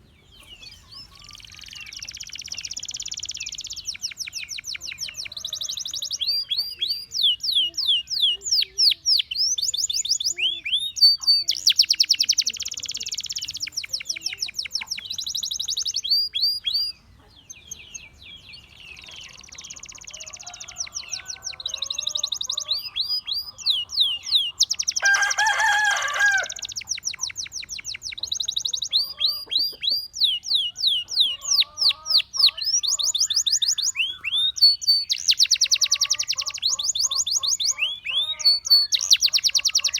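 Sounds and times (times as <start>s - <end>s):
canary singing trills: 0.0s - 39.9s
lower-pitched bird call: 18.6s - 39.9s.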